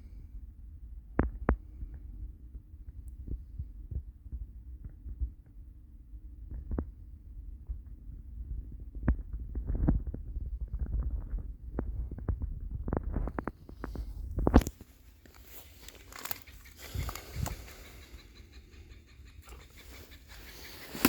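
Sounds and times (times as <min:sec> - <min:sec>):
low rumble of wind on microphone: 0:00.0 - 0:21.0
footsteps crunching through snow: 0:14.6 - 0:17.3.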